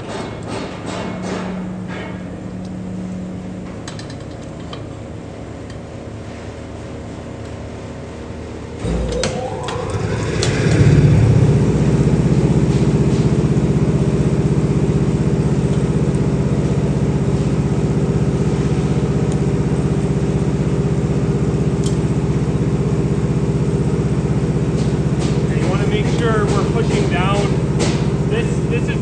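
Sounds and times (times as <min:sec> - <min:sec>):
machine pulsing hum: 0:08.7 - 0:17.2.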